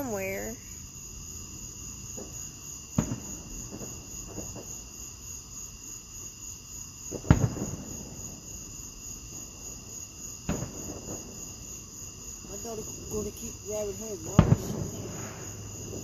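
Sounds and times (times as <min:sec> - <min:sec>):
crickets chirping: 0:00.0 - 0:16.0
fireworks booming: 0:00.0 - 0:16.0
faint firework pops: 0:02.1 - 0:05.0, 0:07.1 - 0:09.7, 0:10.4 - 0:11.8, 0:12.4 - 0:16.0.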